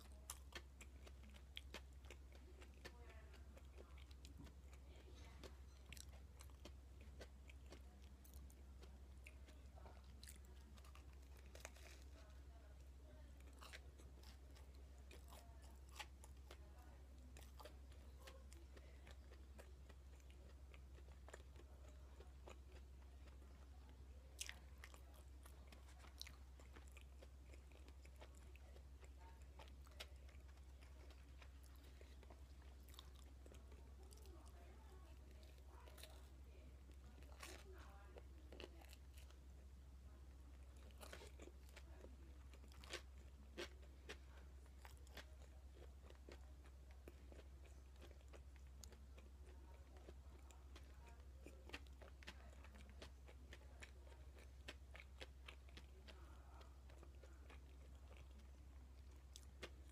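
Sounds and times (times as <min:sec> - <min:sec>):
steady low hum: 0:00.0 - 0:59.9
wet chewing mouth sounds: 0:00.0 - 0:59.9.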